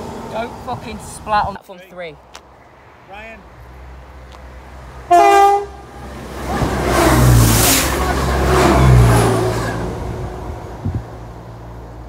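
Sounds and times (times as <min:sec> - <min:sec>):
train wheels rushing on rail: 0:04.8 - 0:11.1
train horn blast: 0:05.0 - 0:09.8.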